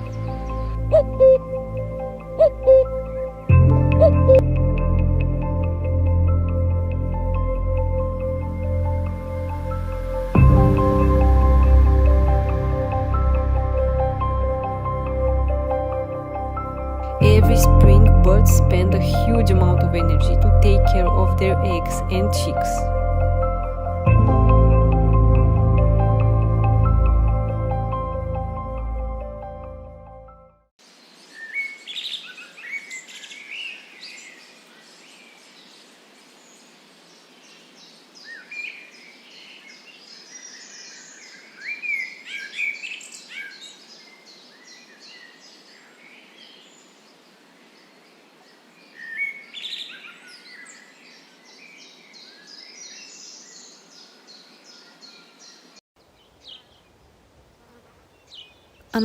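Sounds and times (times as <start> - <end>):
songbirds singing and chirping: 0.0 - 25.2, 30.8 - 57.1, 58.0 - 59.0
fast high repeated bird notes: 0.6 - 1.6, 2.4 - 3.0, 3.8 - 4.4
faint steady hiss: 30.8 - 59.0.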